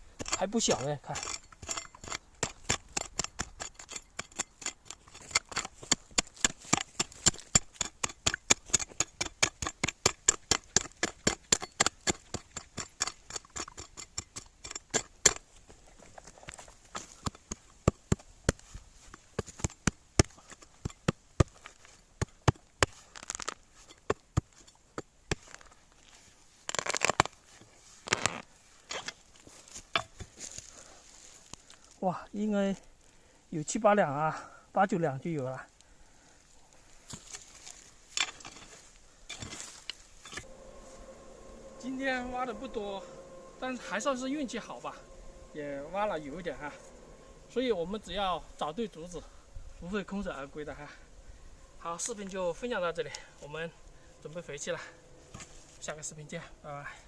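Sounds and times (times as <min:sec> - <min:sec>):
digging tool chipping into soil: 0:00.2 - 0:15.5, 0:16.9 - 0:25.7.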